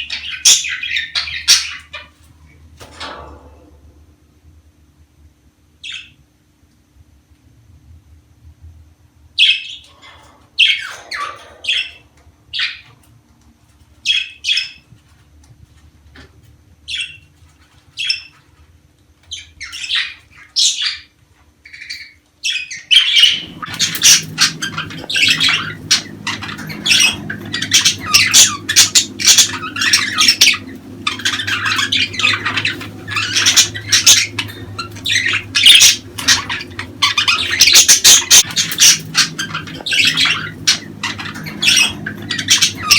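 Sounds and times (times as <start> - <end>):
budgerigars chirping and squawking: 0.0 - 2.2, 5.8 - 6.2, 9.4 - 13.1, 14.0 - 14.9, 16.9 - 18.5, 19.2 - 42.9
low hum: 23.3 - 42.9.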